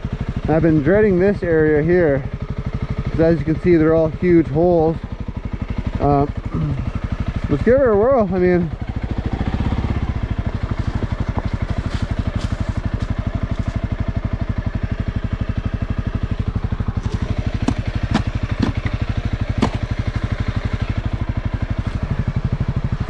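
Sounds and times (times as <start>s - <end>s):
motorcycle engine running: 0.0s - 23.0s
sharp knocks: 17.0s - 18.9s, 19.6s - 20.0s.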